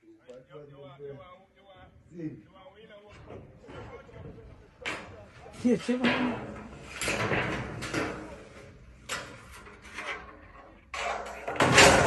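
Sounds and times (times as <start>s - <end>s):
scraping and rubbing noises: 3.0s - 12.0s.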